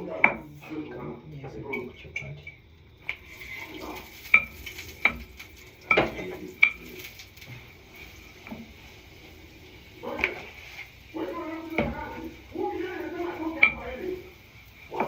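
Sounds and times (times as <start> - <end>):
faint hiss: 0.0 - 15.0
metal utensil clinking on pot: 1.7 - 7.6, 11.4 - 15.0.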